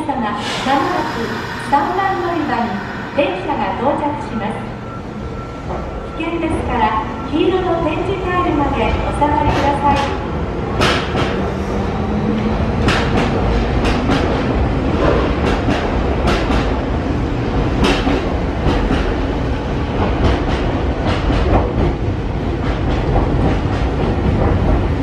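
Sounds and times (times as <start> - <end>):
train rumbling: 0.0 - 25.0
train wheels clacking on track: 9.3 - 11.5, 12.4 - 16.9, 17.6 - 25.0.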